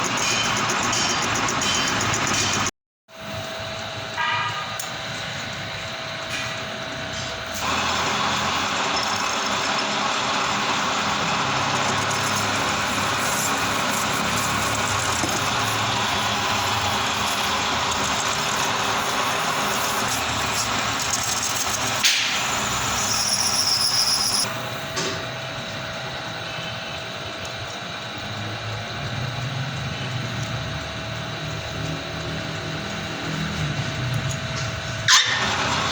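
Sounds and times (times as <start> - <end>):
machine hum: 0.0 - 35.9
lathe cutting metal: 7.5 - 24.9, 31.2 - 35.9
high squeal: 11.8 - 24.8.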